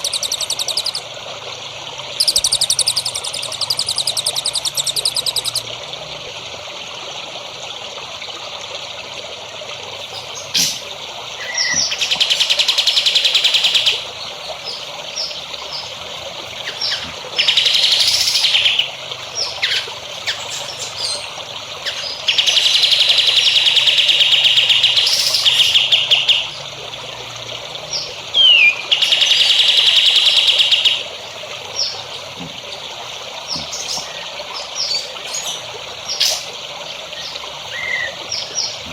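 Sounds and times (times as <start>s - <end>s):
bird chirps and whistles: 0.0s - 1.0s, 2.2s - 5.6s, 28.4s - 31.0s
songbird buzzy trills: 0.0s - 1.4s, 2.0s - 5.8s, 9.8s - 38.9s
water trickling: 0.0s - 38.9s.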